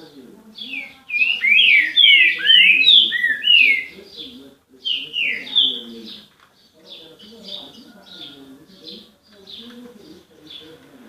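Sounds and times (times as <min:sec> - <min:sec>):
songbird whistling: 0:00.6 - 0:04.0, 0:04.9 - 0:05.8.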